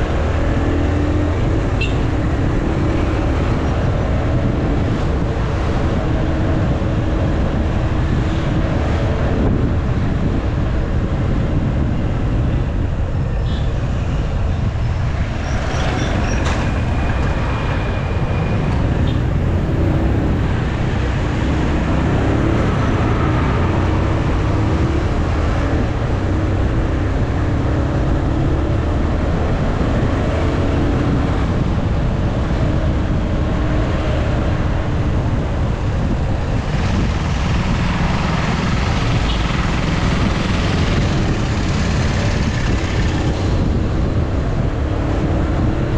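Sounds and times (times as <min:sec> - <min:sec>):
wind rushing over microphone: 0:00.0 - 0:45.9
motorcycle engine: 0:15.8 - 0:25.4.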